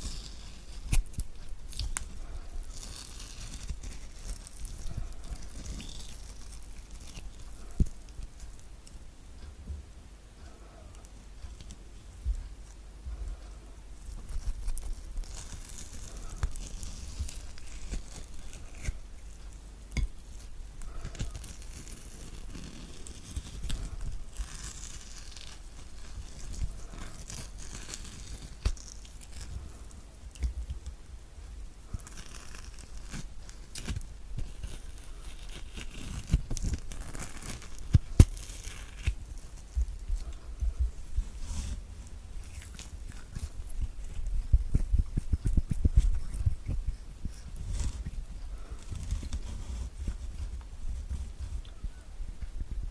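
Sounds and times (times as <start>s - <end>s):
spoon scraping fruit flesh: 0.0s - 8.6s, 14.2s - 29.5s.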